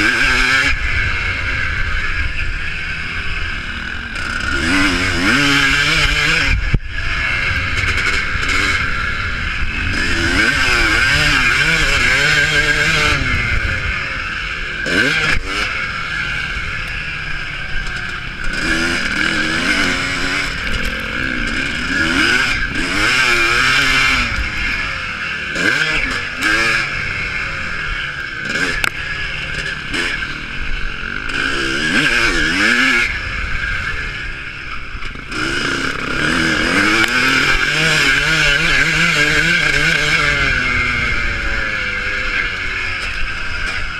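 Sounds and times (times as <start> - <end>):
motocross bike engines revving: 0.0 - 43.9.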